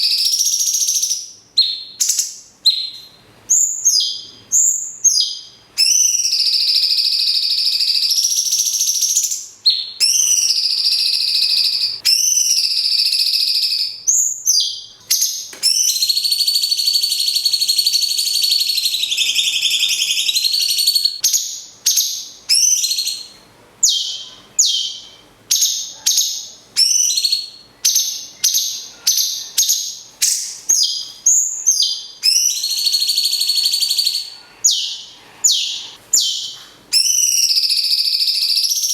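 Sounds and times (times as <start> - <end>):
bird chattering trills: 10.0 - 12.6
bird downward whistled notes: 10.0 - 13.7.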